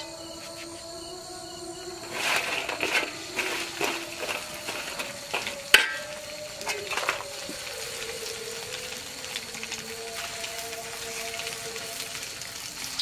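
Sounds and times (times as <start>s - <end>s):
metal utensil scraping a pan: 2.0s - 7.5s.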